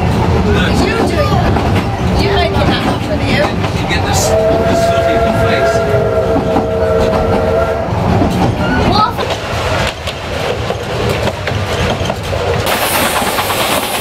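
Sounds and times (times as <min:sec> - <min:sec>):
wheels rumbling and clattering on rails: 0:00.0 - 0:14.0
steam locomotive whistle: 0:04.2 - 0:08.0.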